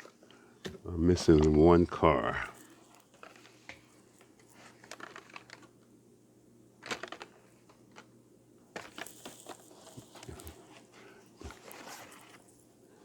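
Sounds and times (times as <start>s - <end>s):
packaging crinkling: 4.6s - 5.7s
toy cars clicking: 8.8s - 10.6s.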